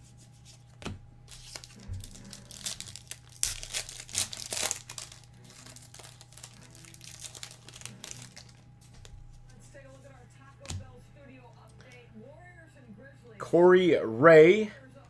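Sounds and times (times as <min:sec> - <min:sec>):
plastic wrapper crinkling and tearing: 0:01.3 - 0:09.3.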